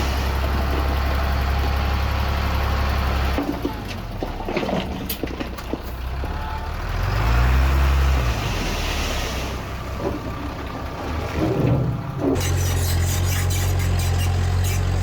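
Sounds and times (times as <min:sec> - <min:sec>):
heavy diesel engine revving: 0:06.5 - 0:09.9.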